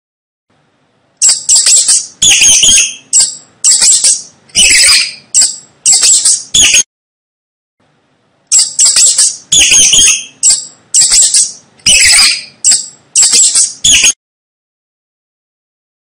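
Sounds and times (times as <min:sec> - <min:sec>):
mouse squeaking: 0:01.2 - 0:06.8, 0:08.5 - 0:14.2.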